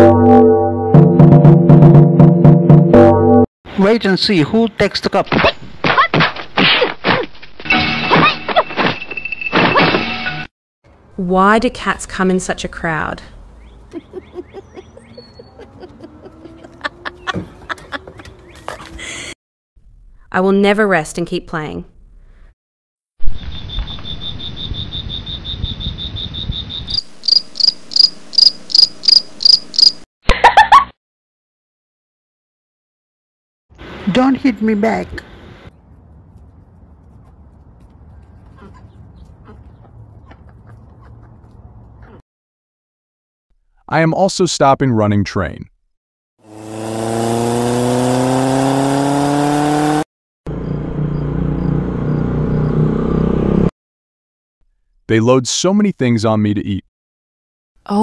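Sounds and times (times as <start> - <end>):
crickets chirping: 23.4 - 30.0
car engine revving: 46.4 - 53.7.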